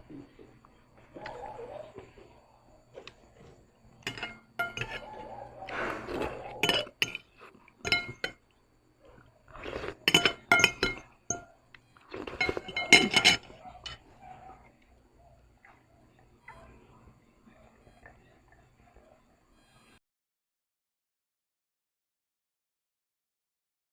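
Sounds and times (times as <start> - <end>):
tableware clinking: 3.0 - 8.5, 9.7 - 11.5, 12.2 - 14.6.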